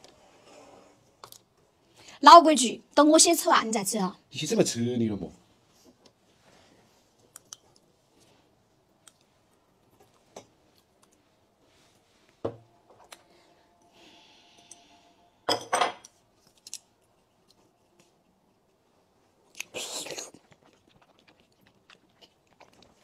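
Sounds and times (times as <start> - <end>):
tableware clinking: 14.6 - 16.2
tableware clattering: 15.5 - 16.2.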